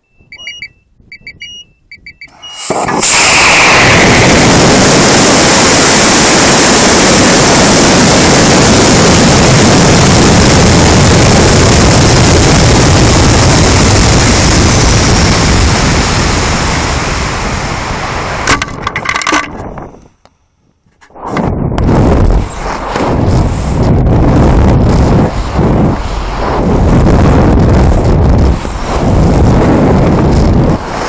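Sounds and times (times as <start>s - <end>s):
rocket motor roaring: 2.3s - 20.0s.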